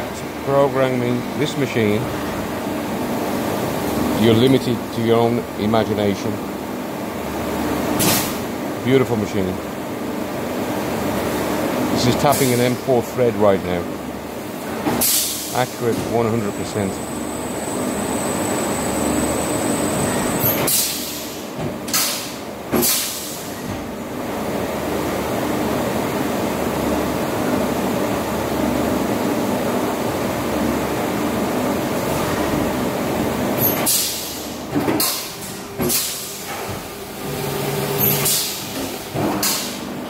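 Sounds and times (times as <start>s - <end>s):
high steady whine: 15.7s - 20.5s.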